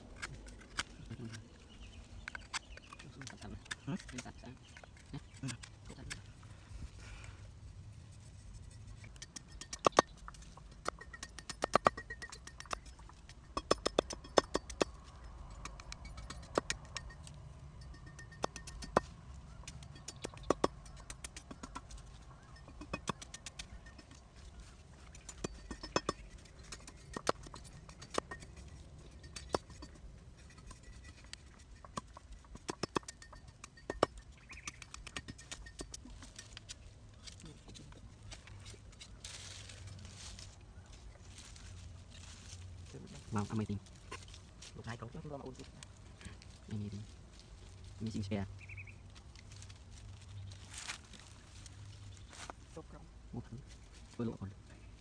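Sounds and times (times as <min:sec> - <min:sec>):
irregular sharp clicks and knocks: 0:09.0 - 0:24.3, 0:25.1 - 0:30.0, 0:30.6 - 0:37.4.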